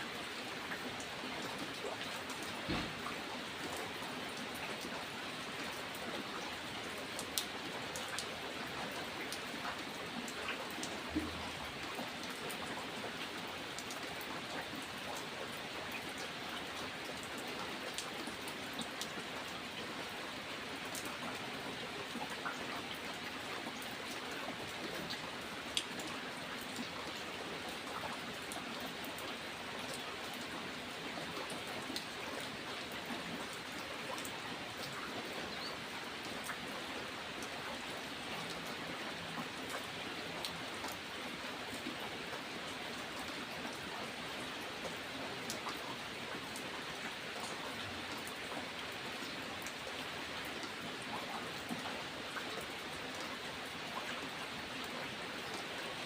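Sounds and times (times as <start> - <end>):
steady rain hiss: 0.0 - 56.0
raindrop ticks: 7.2 - 12.6.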